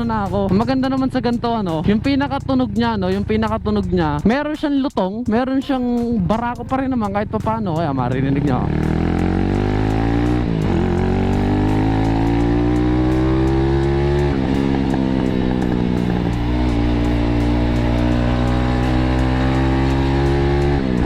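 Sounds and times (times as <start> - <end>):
motorcycle engine accelerating: 7.2 - 21.0.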